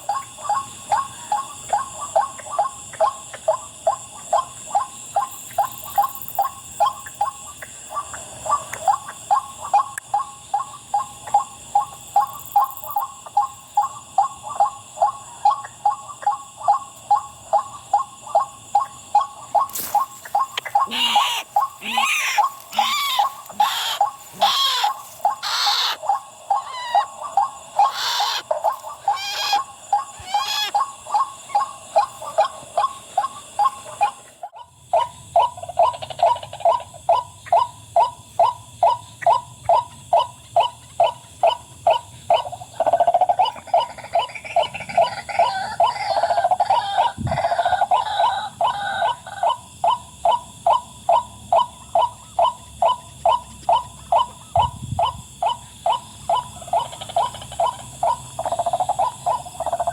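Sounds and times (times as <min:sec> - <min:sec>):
waterhen calling: 0:19.6 - 0:31.3.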